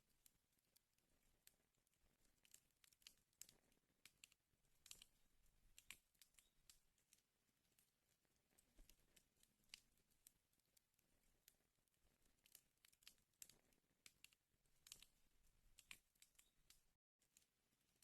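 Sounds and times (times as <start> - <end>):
wood fire crackling: 2.1 - 7.1, 12.0 - 16.9.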